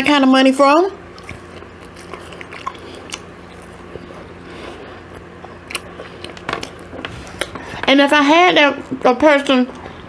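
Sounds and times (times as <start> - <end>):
faint steady hum: 0.0 - 10.0
person chewing food: 1.1 - 7.9.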